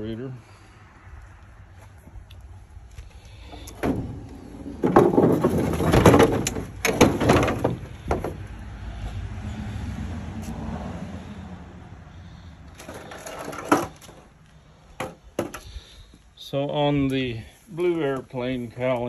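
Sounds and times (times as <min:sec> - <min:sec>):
vehicle passing by: 0:00.0 - 0:04.8, 0:07.5 - 0:14.9.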